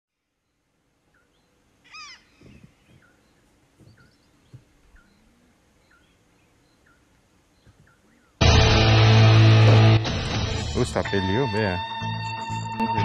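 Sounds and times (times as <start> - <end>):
bird chirping: 0.3 - 8.4.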